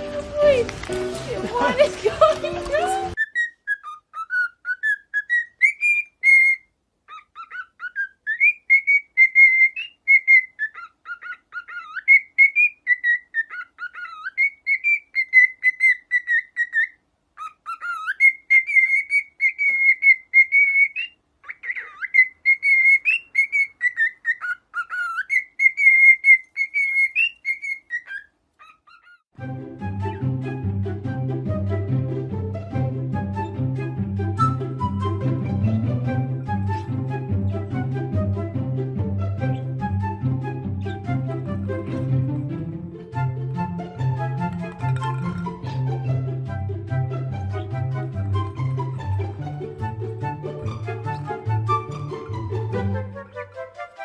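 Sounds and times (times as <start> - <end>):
parrot whistling: 3.1 - 29.3.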